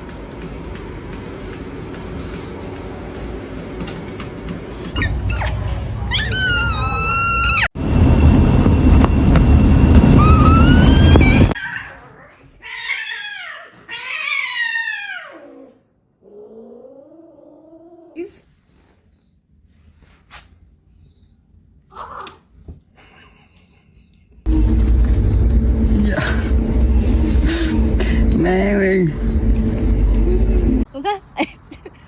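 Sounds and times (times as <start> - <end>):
pet animal calls: 5.0 - 7.7.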